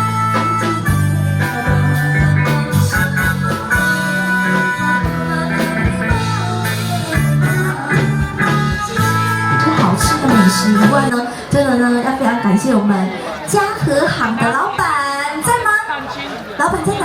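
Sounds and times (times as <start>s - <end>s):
live band music: 0.0s - 12.8s.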